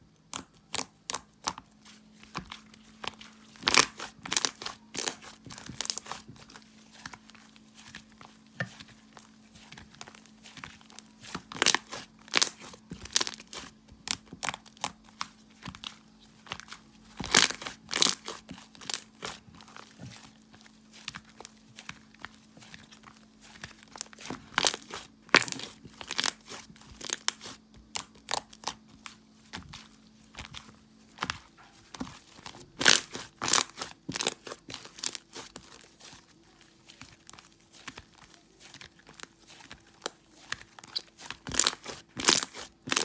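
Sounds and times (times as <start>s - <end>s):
slime squeezed with sticky pops: 10.8s - 15.9s, 37.0s - 43.0s.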